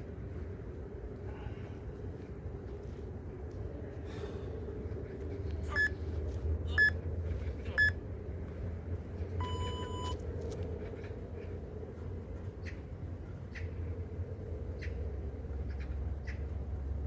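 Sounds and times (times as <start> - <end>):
steady low hum: 0.0 - 17.0
timer beeping: 5.7 - 5.9, 9.4 - 10.2.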